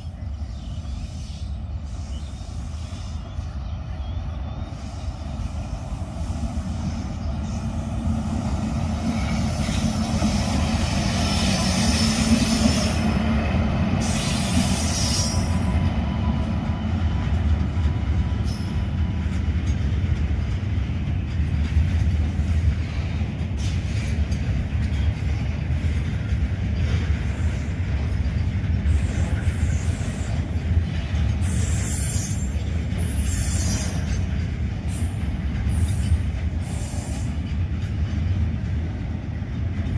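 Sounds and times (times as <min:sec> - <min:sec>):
train wheels rumbling on rails: 0:00.0 - 0:39.9
wheels squealing: 0:31.4 - 0:34.4.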